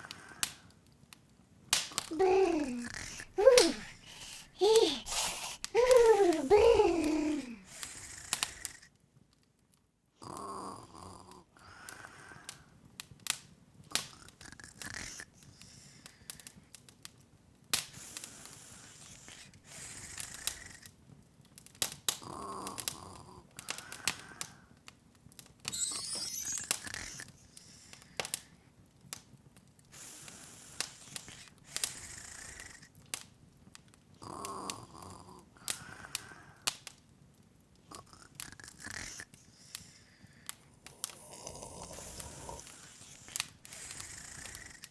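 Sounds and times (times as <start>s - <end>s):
wood fire crackling and popping: 0.0s - 4.5s, 5.6s - 9.8s, 12.5s - 34.8s, 35.7s - 44.9s
soft breathy sound: 2.0s - 8.9s, 34.2s - 36.7s, 37.9s - 44.9s
rising high shimmer: 25.7s - 26.8s.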